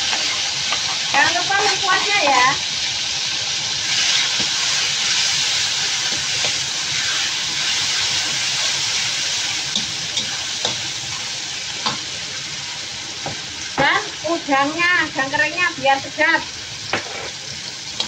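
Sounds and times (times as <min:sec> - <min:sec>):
paste sizzling in hot oil: 0:00.0 - 0:18.0
metal spatula scraping wok: 0:16.9 - 0:18.0.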